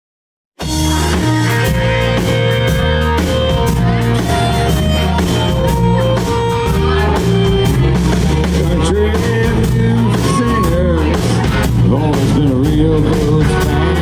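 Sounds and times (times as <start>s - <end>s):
electric guitar: 0.6s - 14.0s
rock band playing: 0.6s - 14.0s.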